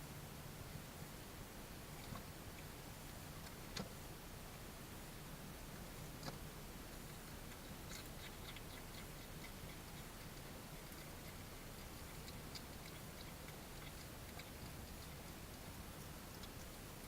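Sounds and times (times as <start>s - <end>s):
low hiss and hum: 0.0s - 17.0s
animal eating clicks and taps: 2.0s - 4.0s, 6.0s - 17.0s.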